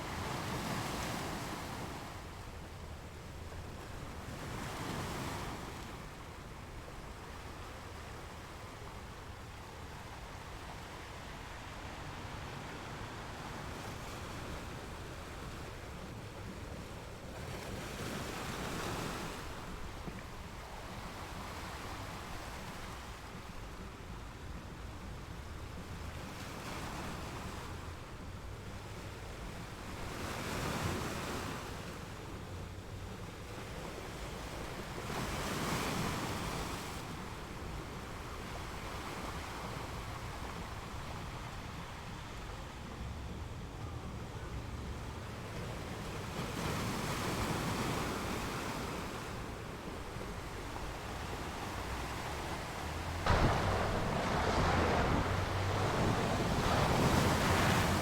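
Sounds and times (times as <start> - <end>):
ocean waves washing on shore: 0.0 - 58.0.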